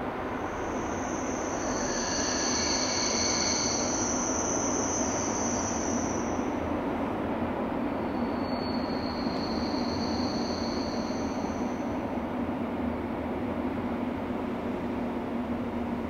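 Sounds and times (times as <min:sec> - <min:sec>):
train rolling past: 0:00.0 - 0:16.0
high-pitched wheel squeal: 0:00.4 - 0:06.6, 0:08.0 - 0:11.9.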